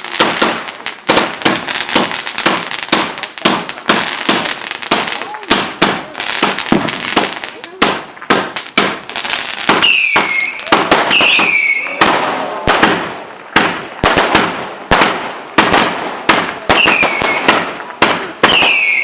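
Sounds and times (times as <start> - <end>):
fireworks bangs and crackles: 0.0 - 19.0
falling firework whistles: 9.7 - 12.8, 16.7 - 17.7, 18.4 - 19.0.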